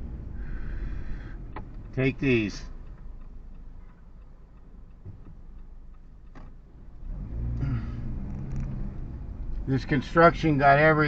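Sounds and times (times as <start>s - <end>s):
road noise inside car: 0.0s - 11.0s
car engine accelerating: 6.7s - 11.0s.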